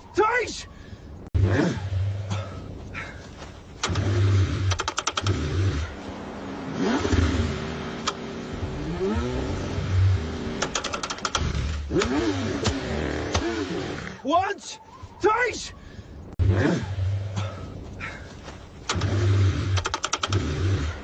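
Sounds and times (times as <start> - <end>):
car starter cranking engine: 3.8 - 5.9, 10.6 - 13.6, 18.8 - 21.0.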